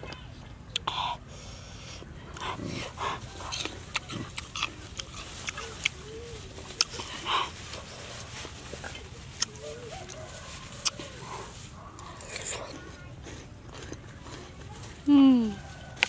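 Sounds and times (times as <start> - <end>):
wet chewing and lip-smacking: 2.3 - 14.8
crunchy bites: 2.4 - 6.0, 6.7 - 14.6.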